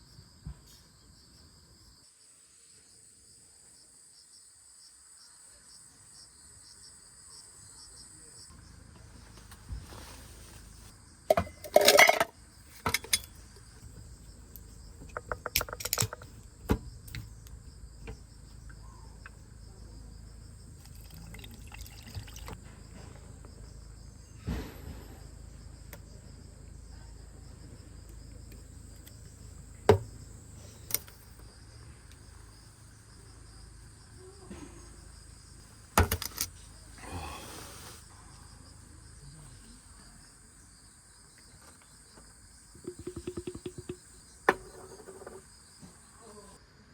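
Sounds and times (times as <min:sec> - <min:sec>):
crickets chirring: 0:00.0 - 0:46.9
knocks and clatter from handling: 0:11.3 - 0:13.4, 0:15.0 - 0:17.3, 0:42.8 - 0:45.5.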